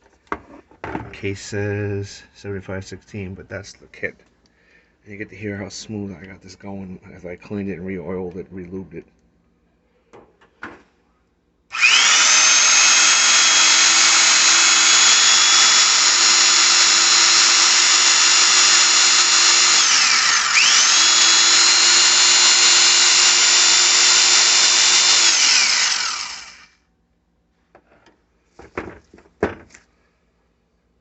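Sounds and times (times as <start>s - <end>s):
jigsaw motor whining: 11.7s - 26.7s.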